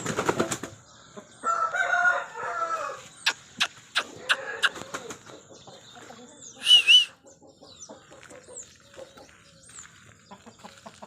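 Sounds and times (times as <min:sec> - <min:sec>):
chickens clucking softly: 0:00.4 - 0:11.0
high-pitched chirps: 0:06.6 - 0:07.2.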